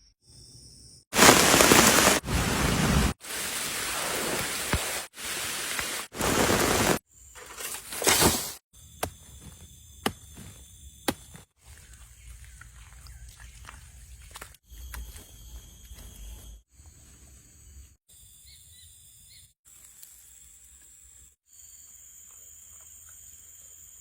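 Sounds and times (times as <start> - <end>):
heavy rain hissing: 1.2 - 7.0.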